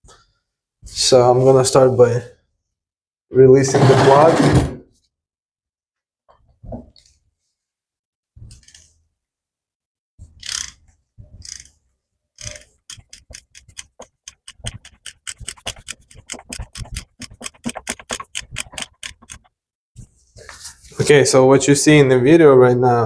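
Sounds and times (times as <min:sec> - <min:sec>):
socket ratchet clicking: 0:12.4 - 0:19.4.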